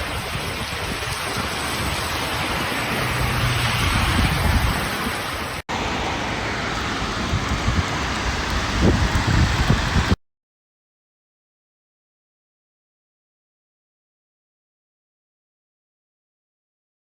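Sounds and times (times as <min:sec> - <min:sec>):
heavy rain hissing: 0:00.0 - 0:10.2.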